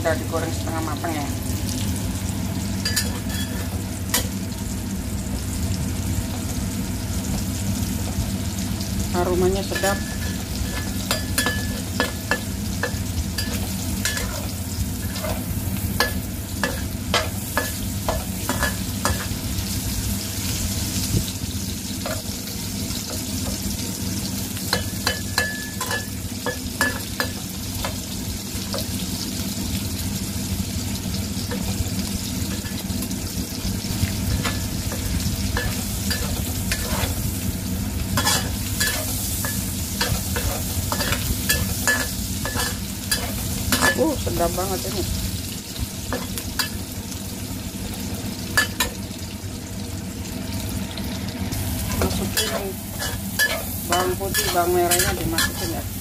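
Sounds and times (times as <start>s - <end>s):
fish sizzling in hot oil: 0.0s - 56.0s
metal spatula scraping a wok: 34.3s - 37.2s.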